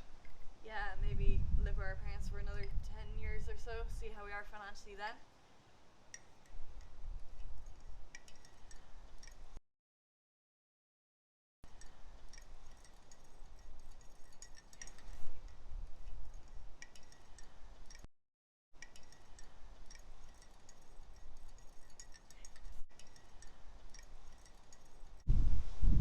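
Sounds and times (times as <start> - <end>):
crockery clinking: 12.4 - 15.6, 18.9 - 25.3.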